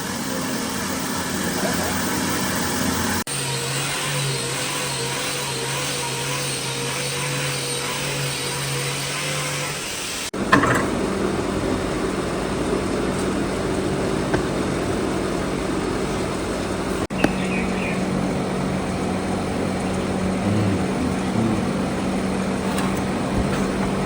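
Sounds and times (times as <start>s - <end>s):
power tool motor humming: 0.0s - 10.3s.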